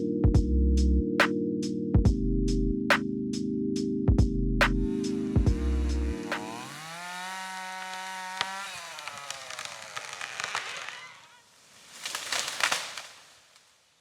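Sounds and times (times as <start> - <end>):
chainsaw revving: 4.8 - 11.4
wood breaking with crackling crash: 6.4 - 14.0.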